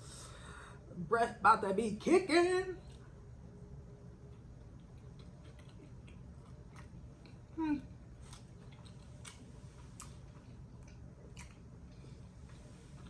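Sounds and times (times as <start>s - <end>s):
close chewing: 4.8s - 7.5s, 8.2s - 13.0s.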